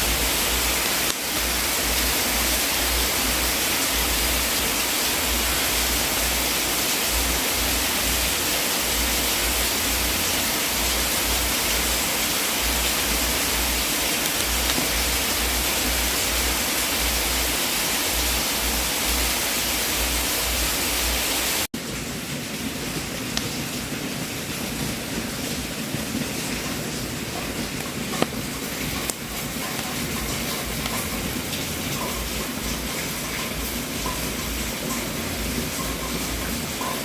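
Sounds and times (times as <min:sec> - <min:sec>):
fire hissing: 0:00.0 - 0:21.7.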